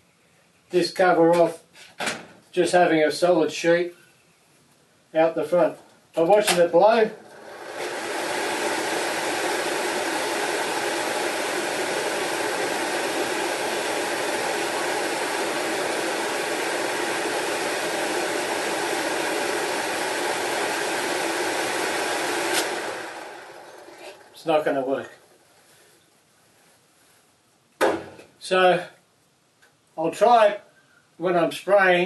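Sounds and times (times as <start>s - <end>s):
exhaust fan rushing air: 5.3s - 25.9s.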